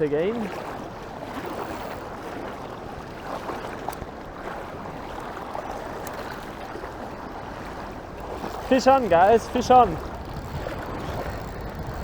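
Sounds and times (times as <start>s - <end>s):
faint ticks: 8.2s - 12.0s.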